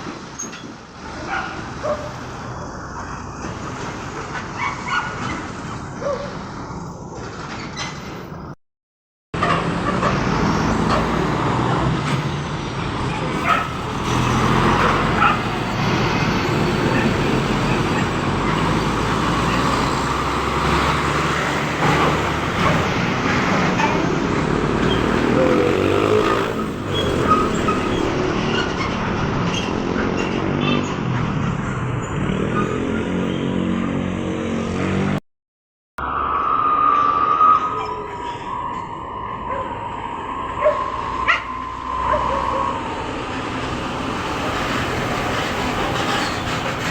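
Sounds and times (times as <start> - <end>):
steady road noise: 0.0 - 8.6, 9.4 - 35.2, 36.0 - 46.9
trucks and traffic driving past: 9.4 - 35.2, 38.2 - 46.9.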